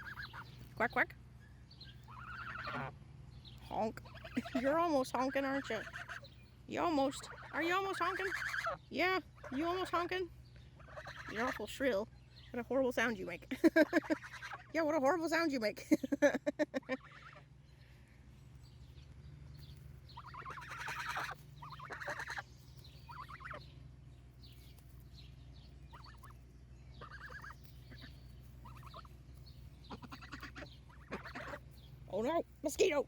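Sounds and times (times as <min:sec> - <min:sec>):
young goose shrill calls: 0:00.0 - 0:00.6, 0:01.5 - 0:03.0, 0:04.0 - 0:06.4, 0:07.1 - 0:10.1, 0:10.7 - 0:11.9, 0:14.0 - 0:14.8, 0:17.0 - 0:17.5, 0:20.1 - 0:23.8, 0:25.8 - 0:29.2, 0:29.8 - 0:32.3.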